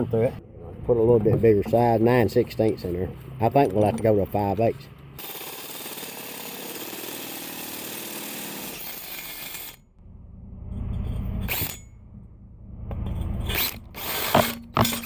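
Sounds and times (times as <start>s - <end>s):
electric drill boring through steel: 5.2s - 9.8s.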